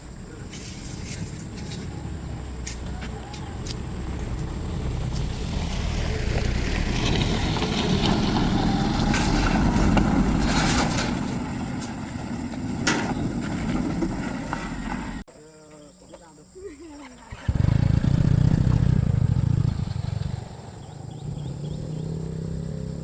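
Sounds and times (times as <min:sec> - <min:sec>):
heavy vehicle engine rumbling: 0:00.0 - 0:15.3.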